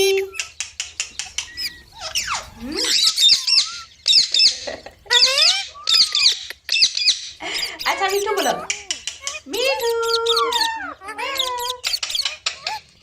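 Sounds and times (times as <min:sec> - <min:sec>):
parrot chirping: 0:00.0 - 0:13.0
sharp clicks: 0:00.3 - 0:01.7, 0:08.6 - 0:10.4, 0:11.5 - 0:12.6.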